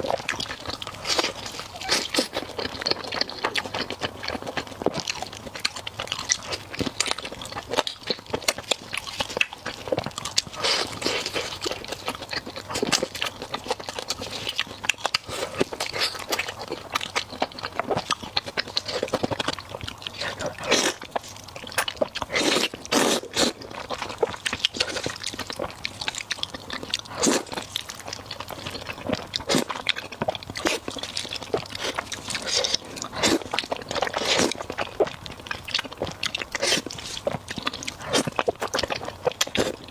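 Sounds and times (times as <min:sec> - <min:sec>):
person crunching and chewing food: 0:00.0 - 0:39.9.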